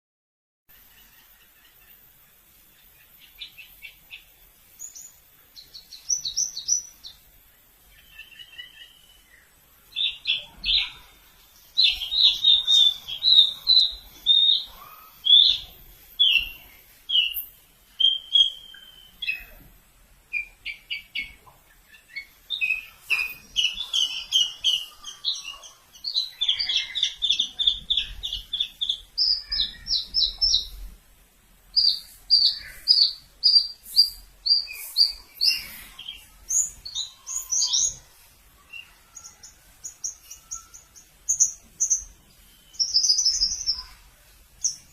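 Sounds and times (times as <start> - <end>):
bird singing rapid chirps: 0.8 - 19.6, 20.3 - 30.9, 31.7 - 44.0.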